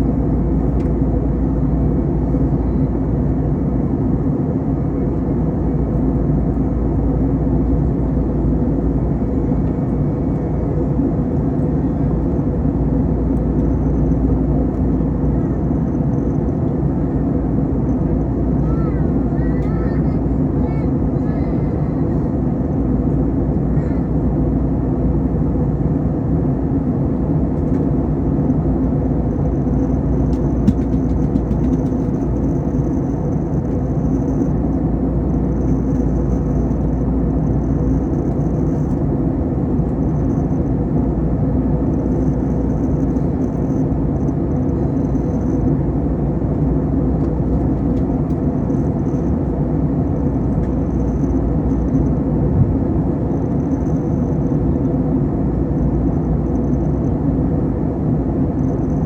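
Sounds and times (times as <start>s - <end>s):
airliner cabin engine rumble: 0.0s - 59.0s
faint high whine: 29.0s - 59.0s.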